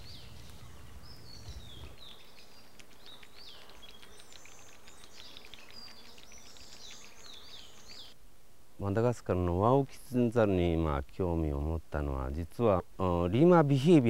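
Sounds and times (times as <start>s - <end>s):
birds chirping: 0.0s - 8.2s.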